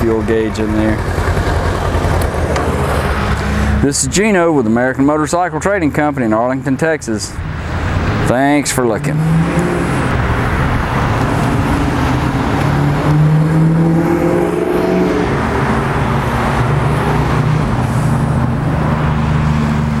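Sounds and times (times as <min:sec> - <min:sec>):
motorcycle engine idling: 0:00.0 - 0:03.5.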